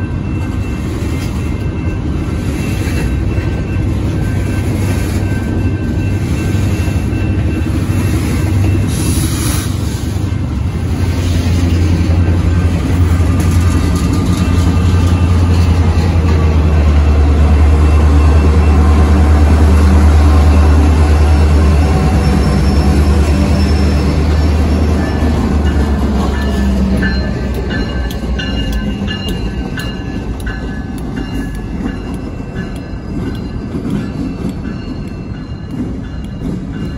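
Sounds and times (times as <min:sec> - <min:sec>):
level-crossing bell ringing: 0:00.0 - 0:09.4, 0:20.0 - 0:36.9
freight train wheels clacking: 0:00.0 - 0:36.9
locomotive engines droning: 0:00.0 - 0:36.9.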